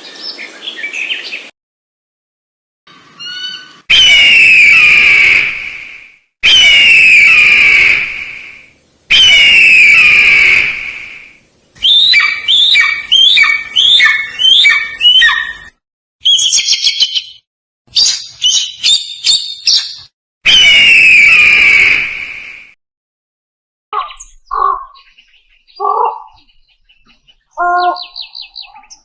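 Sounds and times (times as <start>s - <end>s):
harsh bird calls: 3.1s - 5.5s, 6.4s - 17.4s, 18.0s - 22.0s, 24.0s - 29.0s.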